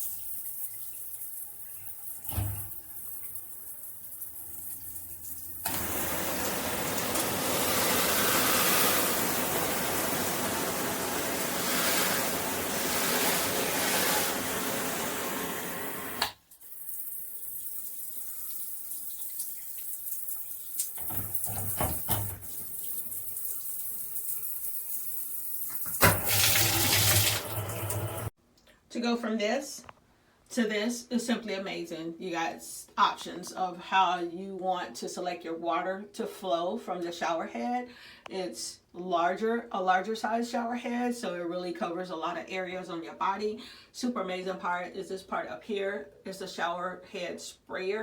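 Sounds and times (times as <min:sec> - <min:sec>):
shower water running: 0:00.0 - 0:28.4.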